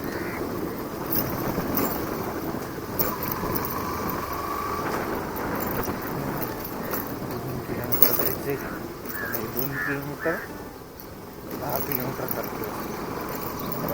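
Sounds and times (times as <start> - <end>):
motorcycle engine running: 0.0 - 9.7
road noise: 0.0 - 13.9.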